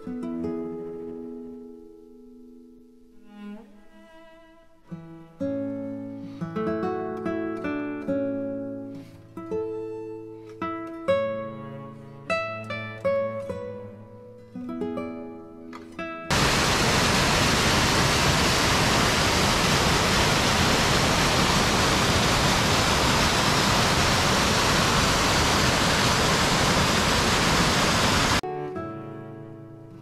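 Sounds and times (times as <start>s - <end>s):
plucked guitar music: 4.9s - 16.3s, 28.4s - 30.0s
waterfall rushing: 16.3s - 28.4s.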